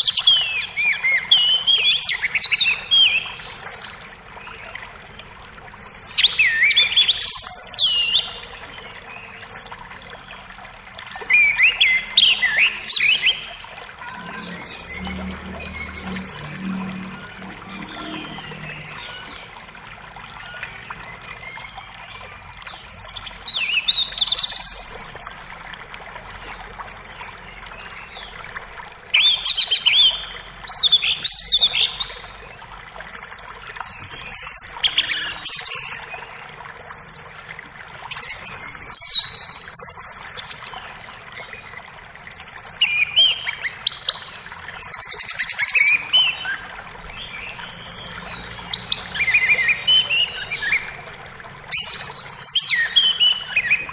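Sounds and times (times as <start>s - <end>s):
creek water rushing: 0.0s - 53.9s
songbirds chirping and trilling: 10.1s - 24.8s, 42.5s - 53.9s.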